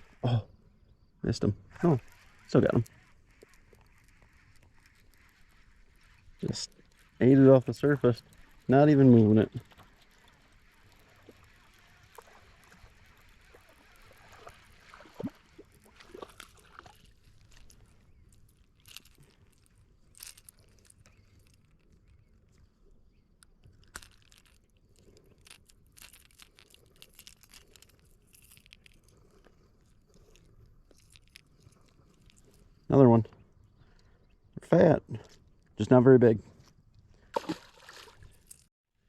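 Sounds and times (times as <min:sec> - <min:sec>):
soft water sloshes: 0:08.4 - 0:18.0, 0:37.2 - 0:38.7.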